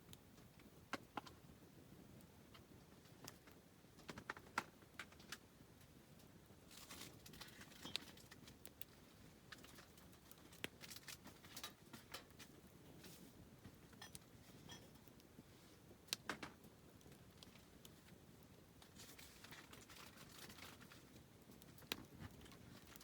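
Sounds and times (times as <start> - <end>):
campfire crackling and popping: 0.0 - 23.0
faint hiss of flame: 0.0 - 23.0.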